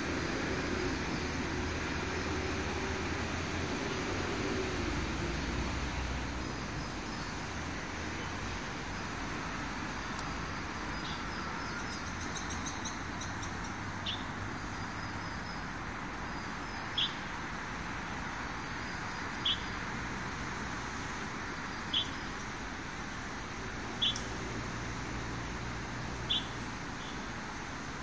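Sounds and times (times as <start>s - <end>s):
outdoor background hiss: 0.0s - 28.0s
bird chirping: 10.9s - 15.6s, 16.4s - 17.2s, 18.8s - 19.8s, 21.7s - 22.5s, 24.0s - 24.3s, 26.3s - 27.2s.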